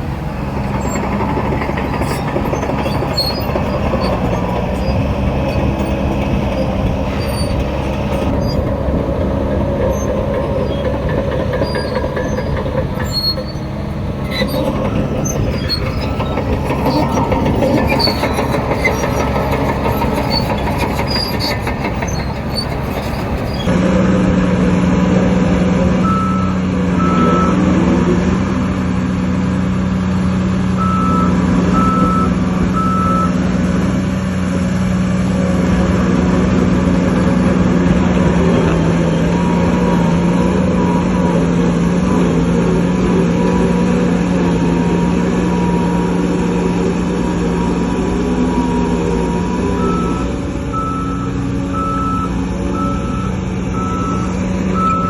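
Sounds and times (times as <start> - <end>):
machinery clatter with metallic squeaks: 0.0 - 23.8, 30.3 - 34.2, 37.1 - 55.0
diesel engine drone: 0.0 - 55.0
reversing alarm beeping: 26.0 - 27.6, 30.8 - 33.4, 49.3 - 55.0.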